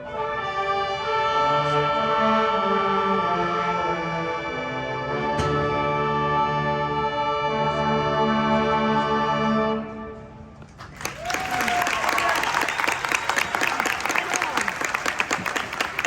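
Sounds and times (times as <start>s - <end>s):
audience applause: 10.8s - 16.0s.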